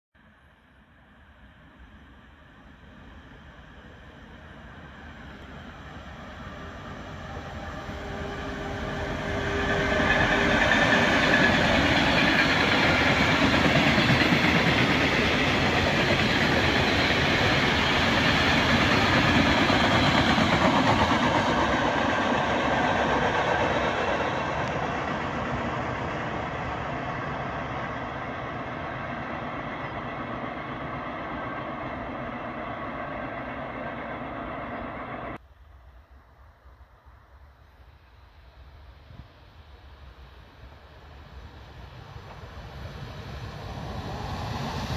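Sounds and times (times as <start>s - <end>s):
freight train wheels rumbling: 2.0s - 35.4s, 39.4s - 44.9s
locomotive whine: 2.0s - 35.4s.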